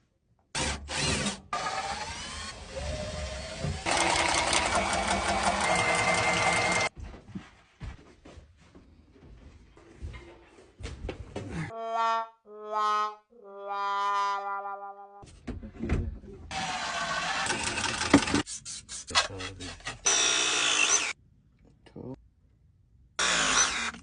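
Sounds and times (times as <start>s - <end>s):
small motor running: 3.8s - 6.9s
scattered clicks and knocks: 17.5s - 18.5s.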